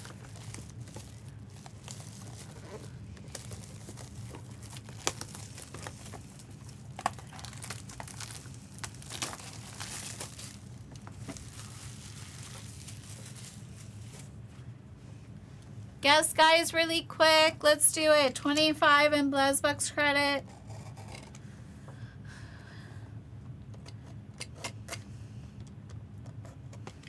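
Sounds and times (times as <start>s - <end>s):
plastic packaging crinkling: 0.0s - 14.4s
faint low hum: 0.0s - 27.0s.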